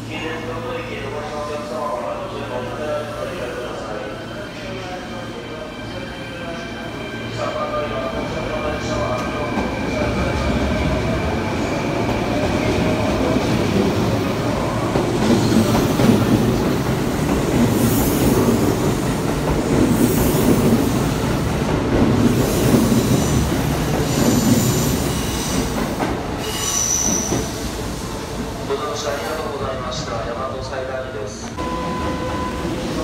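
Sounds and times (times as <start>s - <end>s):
high wheel squeals: 26.4s - 27.6s.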